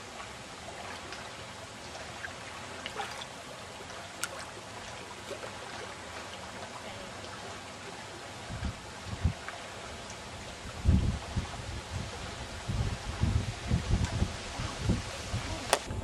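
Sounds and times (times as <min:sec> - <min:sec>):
water lapping against kayak: 0:00.0 - 0:16.0
faint light splashes: 0:00.2 - 0:08.2.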